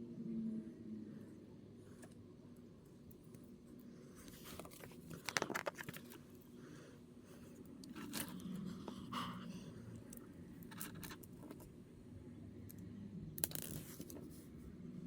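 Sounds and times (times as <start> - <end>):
plastic parts clicking and scraping: 4.2 - 6.3, 7.6 - 9.1, 9.9 - 11.8, 13.4 - 14.4.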